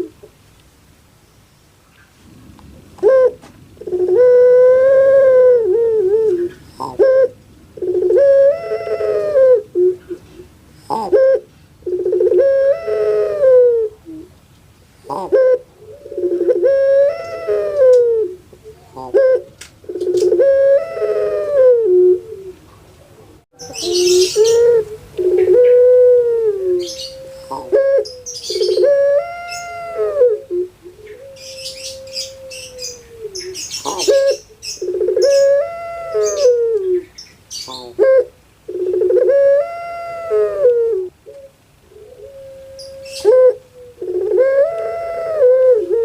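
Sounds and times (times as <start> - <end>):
dove cooing: 0.0 - 0.3, 2.8 - 46.0
higher chirping: 23.6 - 26.0, 26.8 - 38.1.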